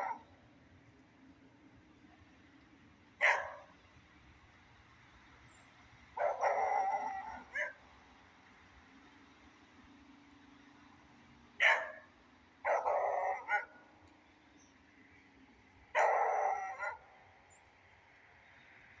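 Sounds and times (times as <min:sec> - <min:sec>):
dog barking: 0:00.0 - 0:00.3, 0:03.2 - 0:03.7, 0:06.2 - 0:07.8, 0:11.6 - 0:13.8, 0:15.9 - 0:17.3.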